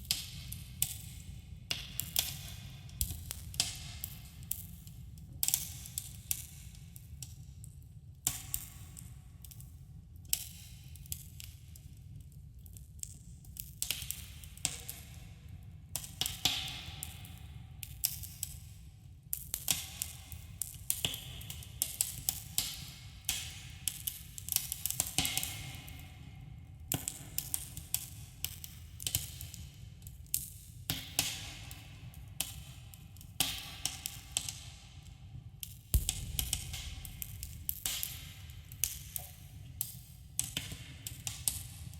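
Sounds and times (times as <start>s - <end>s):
low fire rumble: 36.0s - 38.7s.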